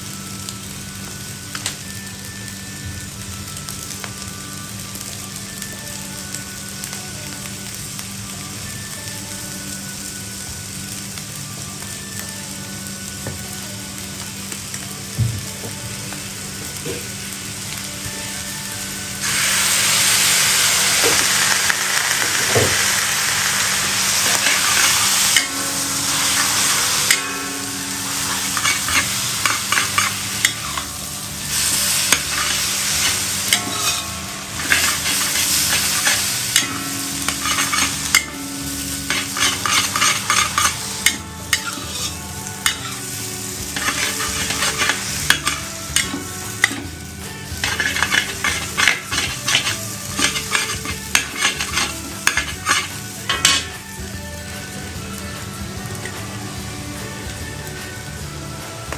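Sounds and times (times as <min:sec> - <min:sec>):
food sizzling in a hot pan: 0:00.0 - 0:58.9
spatula scraping a pan: 0:24.1 - 0:30.9, 0:31.7 - 0:38.4, 0:39.0 - 0:43.1, 0:43.7 - 0:46.9, 0:47.6 - 0:53.7.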